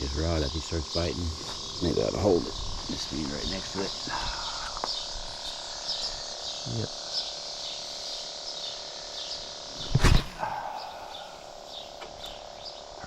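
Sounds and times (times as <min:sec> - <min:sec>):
frogs calling: 0:00.0 - 0:13.0
insects chirping: 0:00.0 - 0:13.0
loud thump: 0:09.8 - 0:10.7.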